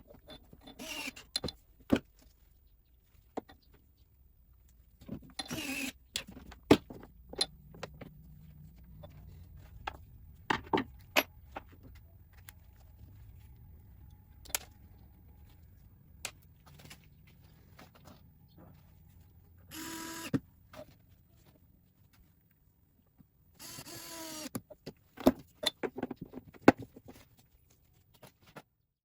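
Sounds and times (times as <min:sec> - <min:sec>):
small parts and tools clattering: 0:00.0 - 0:02.4, 0:04.6 - 0:22.3, 0:24.6 - 0:28.6
faint low hum: 0:00.0 - 0:24.1
rustling: 0:00.9 - 0:19.9.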